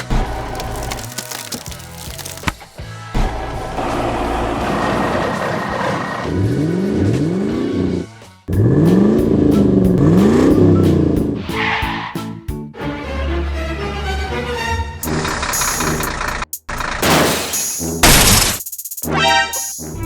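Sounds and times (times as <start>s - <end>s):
music: 0.0s - 20.0s
engine revving: 3.3s - 12.0s, 13.5s - 17.2s.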